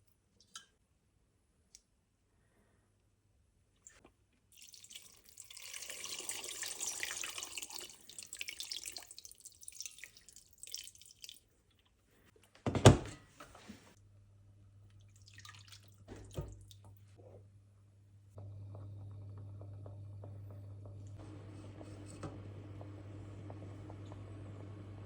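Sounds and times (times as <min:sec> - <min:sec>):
tap water running into sink: 0:04.6 - 0:11.4, 0:15.3 - 0:16.9
water splashing and dripping: 0:04.6 - 0:11.9, 0:15.0 - 0:17.1.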